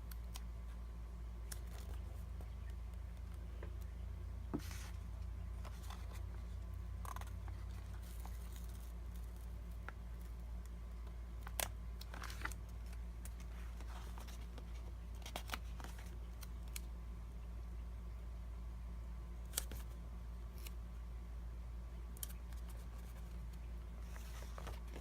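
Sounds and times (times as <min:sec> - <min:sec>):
steady low hum: 0:00.0 - 0:25.0
paper rustling: 0:04.5 - 0:09.6, 0:11.4 - 0:16.5, 0:22.2 - 0:25.0.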